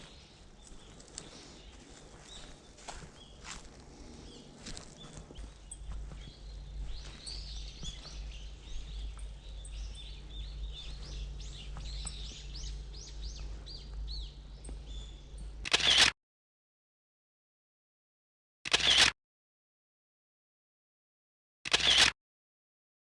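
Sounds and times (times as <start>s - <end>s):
small birds chirping: 0.0s - 16.0s
low rumble: 3.7s - 15.6s.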